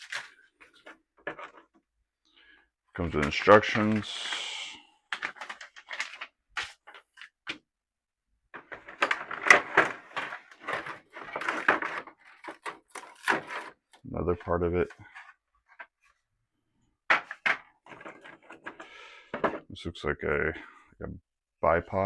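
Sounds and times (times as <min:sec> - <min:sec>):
packaging rustling and crinkling: 0:00.0 - 0:01.6, 0:05.1 - 0:07.4, 0:08.7 - 0:13.9.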